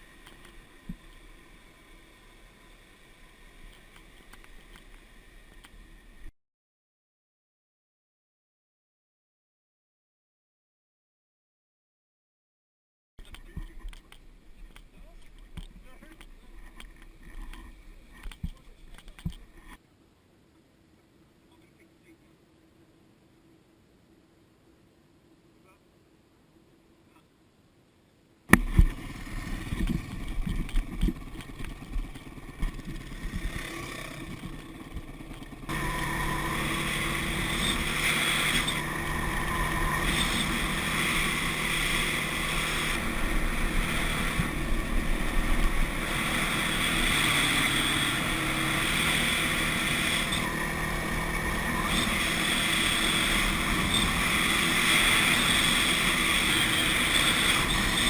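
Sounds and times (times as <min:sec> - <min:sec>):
dirt bike engine running: 0:28.5 - 0:58.0
wind buffeting microphone: 0:28.6 - 0:35.7.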